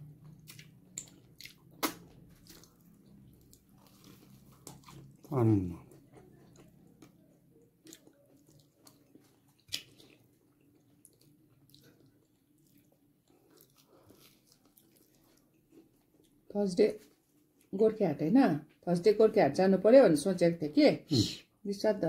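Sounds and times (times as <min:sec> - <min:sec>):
faint chewing of food: 0:00.0 - 0:17.7.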